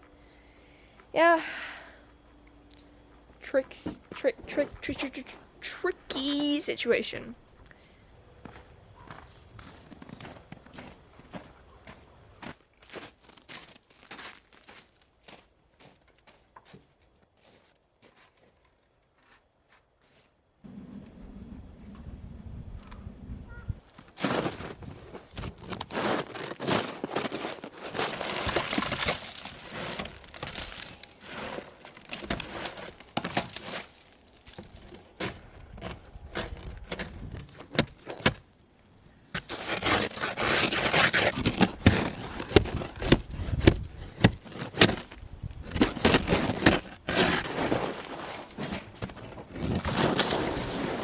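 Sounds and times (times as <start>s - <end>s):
crinkling and scraping: 2.5s - 7.2s, 8.5s - 22.1s, 23.8s - 51.0s
wooden panelling cracking: 23.9s - 51.0s.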